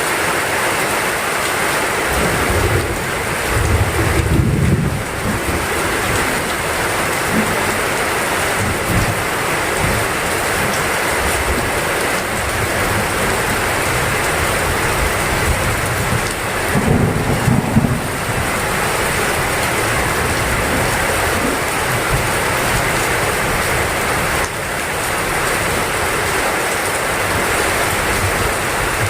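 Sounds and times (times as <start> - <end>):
heavy rain pouring: 0.0 - 29.0
low rumble of thunder: 2.2 - 7.8, 14.4 - 22.8.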